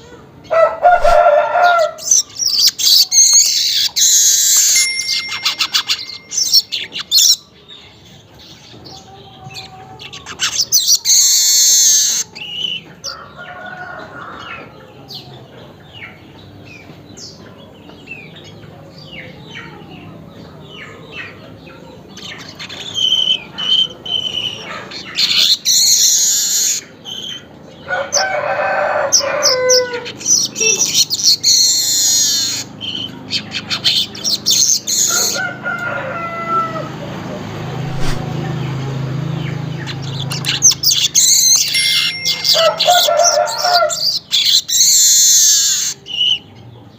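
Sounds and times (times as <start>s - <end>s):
bird chirps: 0.9s - 7.6s.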